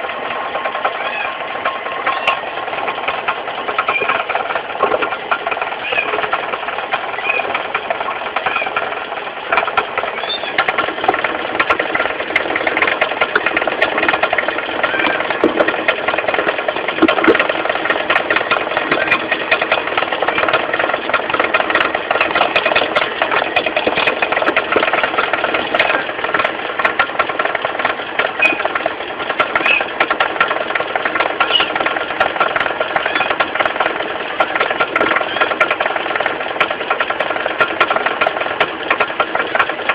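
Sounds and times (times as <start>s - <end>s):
car engine running: 0.0s - 39.9s
rapid knocking rattle: 0.0s - 39.9s.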